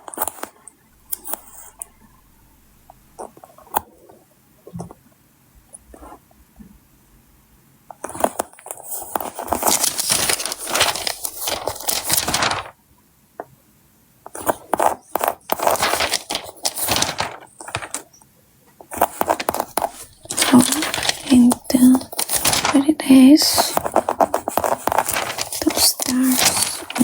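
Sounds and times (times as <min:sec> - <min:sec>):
sticker paper crinkling: 0:01.1 - 0:01.9, 0:08.2 - 0:12.7, 0:14.4 - 0:18.1, 0:18.9 - 0:27.0.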